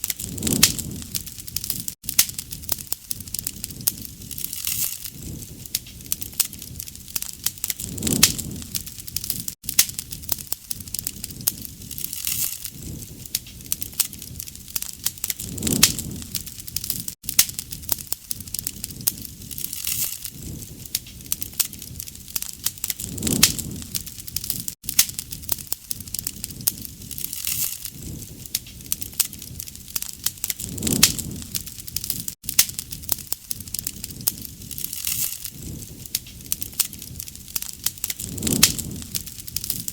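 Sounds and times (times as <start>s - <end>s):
campfire crackling and popping: 0.0s - 39.9s
low rush of flame: 0.0s - 39.9s.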